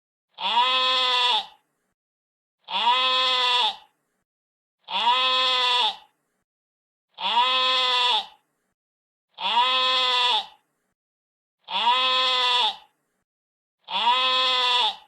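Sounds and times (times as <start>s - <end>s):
sheep bleating: 0.4s - 1.6s, 2.6s - 3.9s, 4.9s - 6.1s, 7.2s - 8.4s, 9.4s - 10.6s, 11.6s - 12.9s, 13.9s - 15.0s.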